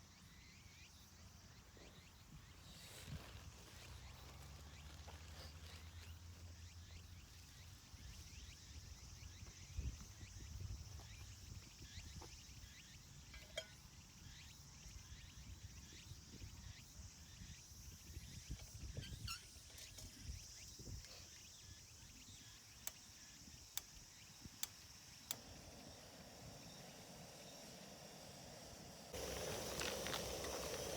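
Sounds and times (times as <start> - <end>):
small birds chirping: 0.0 - 30.9
steady high hiss: 21.5 - 30.9.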